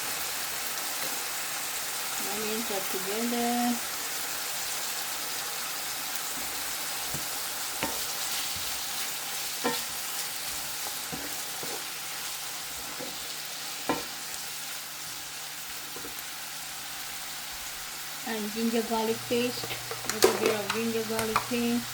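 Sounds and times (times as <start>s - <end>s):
mushrooms sizzling in oil: 0.0s - 21.9s
utensil knocking against pan: 19.6s - 21.6s.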